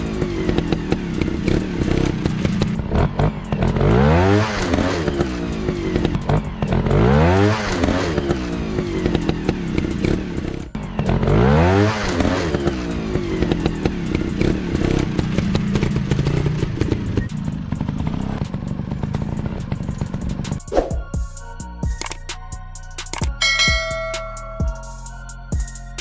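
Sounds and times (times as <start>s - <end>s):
dirt bike engine revving: 0.0s - 20.6s
sharp clicks and knocks: 23.0s - 23.4s.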